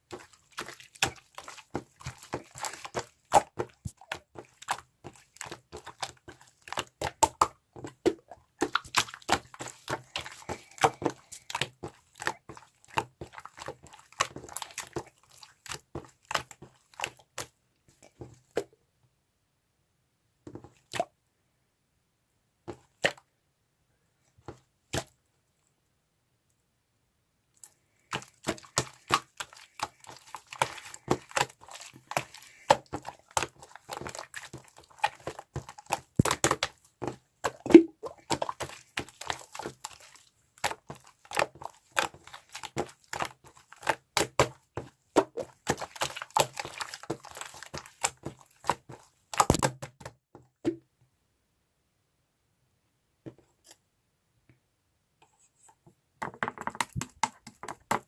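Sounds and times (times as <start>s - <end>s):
slime crackling pops: 45.2s - 49.8s.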